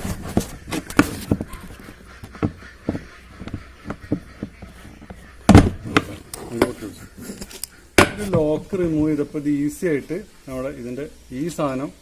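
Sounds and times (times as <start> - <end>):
knocks on washing machine parts: 5.5 - 5.8.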